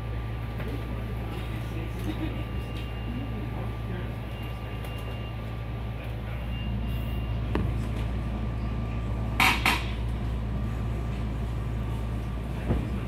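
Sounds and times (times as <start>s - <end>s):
train interior low hum: 0.0s - 13.0s.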